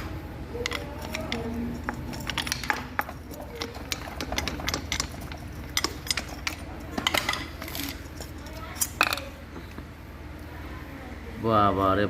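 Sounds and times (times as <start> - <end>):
low steady hum: 0.0 - 12.0
metallic clinks of hand tools: 0.6 - 9.2.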